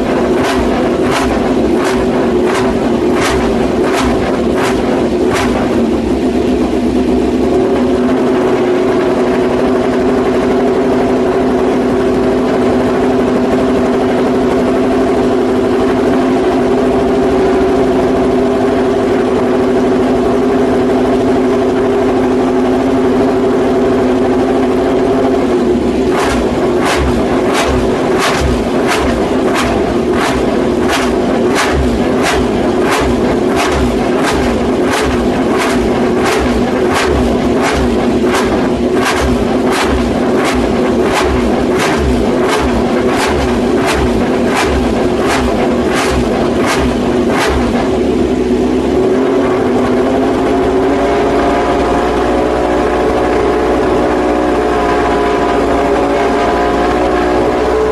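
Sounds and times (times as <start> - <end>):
racing motorcycle engine running: 0.0 - 57.9
sharp engine cracks: 0.2 - 5.8.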